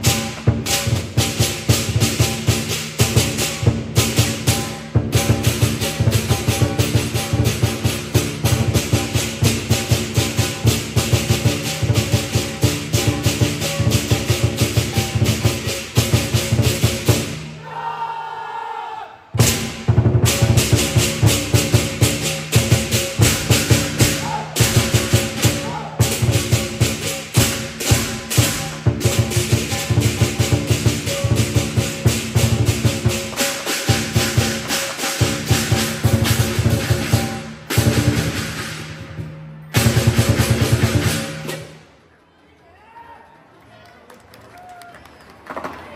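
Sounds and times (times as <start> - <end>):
drum cymbals and gong playing: 0.0 - 17.5, 19.4 - 41.8.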